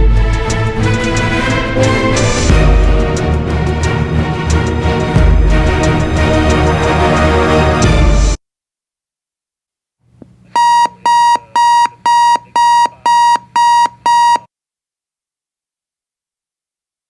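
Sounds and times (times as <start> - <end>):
alarm clock beeping: 10.6 - 14.5.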